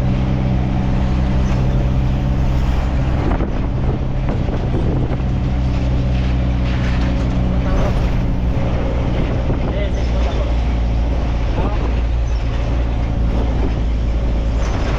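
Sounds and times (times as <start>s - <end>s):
road and wind noise: 0.0s - 14.9s
truck engine running: 0.0s - 14.9s.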